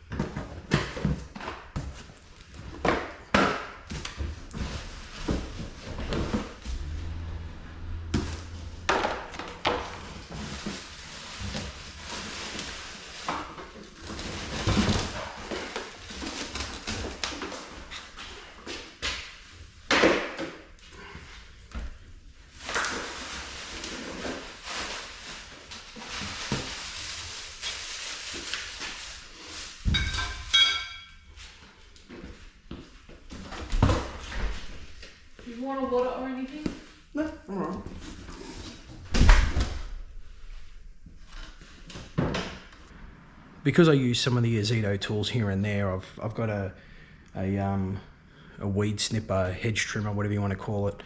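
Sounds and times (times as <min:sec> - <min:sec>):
objects knocking and clattering: 0:00.0 - 0:06.6, 0:29.8 - 0:31.3.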